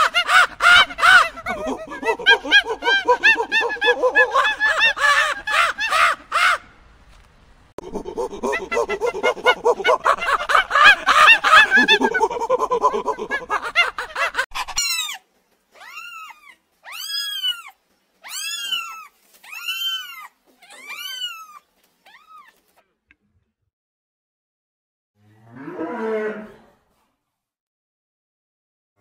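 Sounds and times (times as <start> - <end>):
many animal calls: 0.0 - 6.6, 7.8 - 15.2
cat meowing: 15.8 - 22.6.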